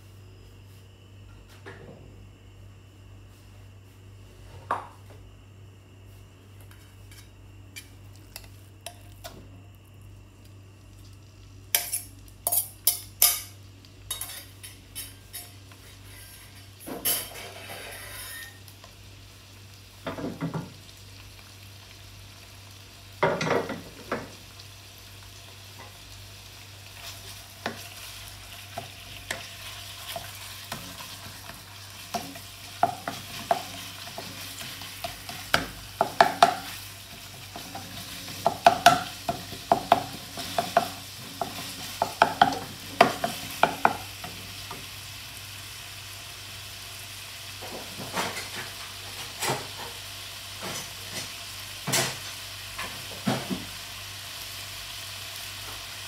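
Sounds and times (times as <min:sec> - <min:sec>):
meat sizzling in oil: 0:10.4 - 0:56.0
wooden spatula scraping a pan: 0:15.8 - 0:18.6.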